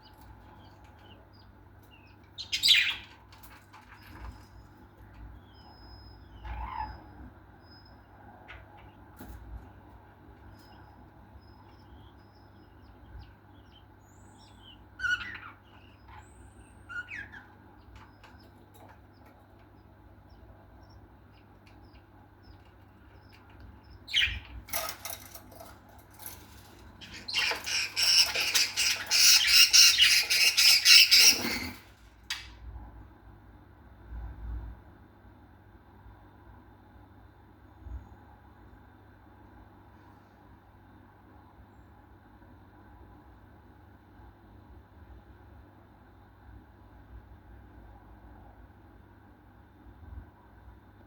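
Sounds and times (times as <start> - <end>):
lovebirds chirping: 0.0 - 3.2, 10.4 - 25.6
birds squawking: 27.0 - 31.9.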